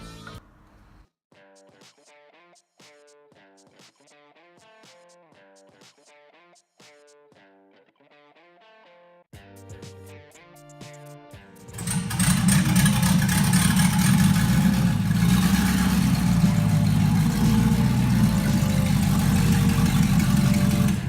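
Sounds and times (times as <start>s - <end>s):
engine running: 11.7s - 21.0s.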